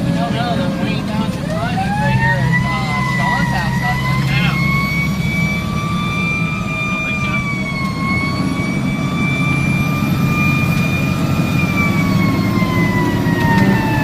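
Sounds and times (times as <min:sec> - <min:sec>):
fire engine siren: 0:00.0 - 0:14.0
truck engine rumble: 0:00.0 - 0:14.0.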